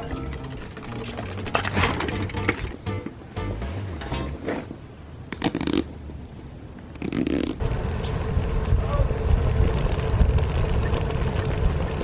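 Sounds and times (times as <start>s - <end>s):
wind rumble on microphone: 7.6s - 12.0s.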